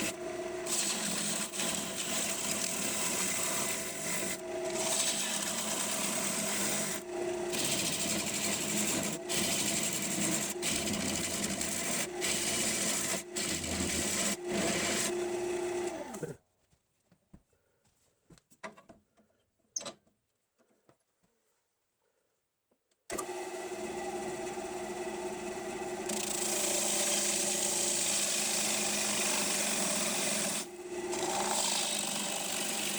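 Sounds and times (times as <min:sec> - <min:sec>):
lathe motor hum: 0:00.0 - 0:16.2, 0:23.1 - 0:32.9.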